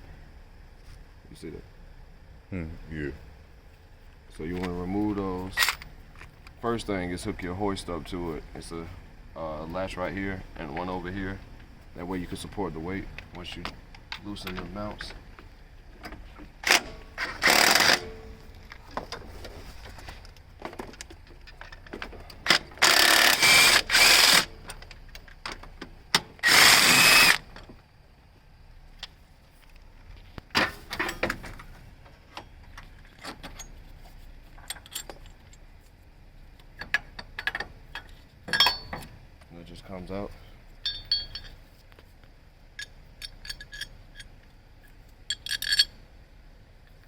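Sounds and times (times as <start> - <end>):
impact wrench bursts: 16.6 - 18.3, 22.5 - 24.5, 26.2 - 27.6
tools clicking and clinking: 34.6 - 35.6, 36.8 - 39.1, 40.8 - 41.6, 42.8 - 46.0.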